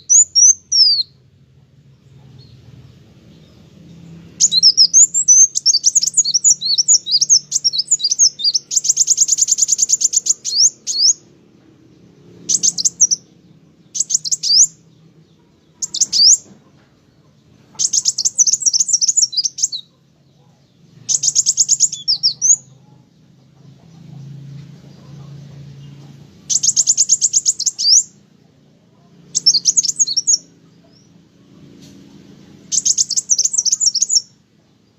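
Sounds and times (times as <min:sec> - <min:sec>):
sunbird twittering: 0:00.0 - 0:01.2, 0:03.3 - 0:11.3, 0:12.2 - 0:16.6, 0:17.7 - 0:20.0, 0:20.8 - 0:22.8, 0:25.9 - 0:28.2, 0:29.3 - 0:31.1, 0:32.6 - 0:34.9.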